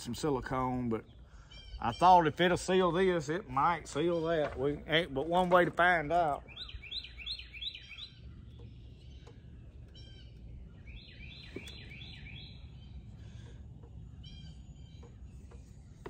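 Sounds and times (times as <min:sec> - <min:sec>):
low steady rumble: 0:00.0 - 0:16.0
songbird whistling and trilling: 0:06.3 - 0:16.0.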